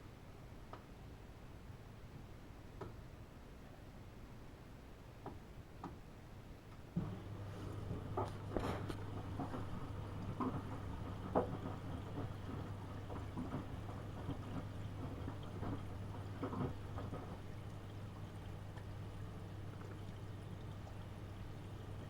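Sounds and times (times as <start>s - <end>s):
water sloshing in washing machine: 7.0s - 22.0s.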